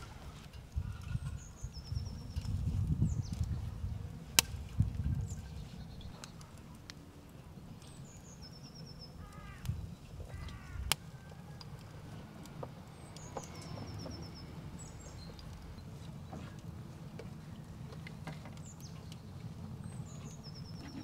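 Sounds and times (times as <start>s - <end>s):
wood fire popping: 0.0s - 21.0s
birds calling: 7.8s - 16.6s, 18.5s - 21.0s.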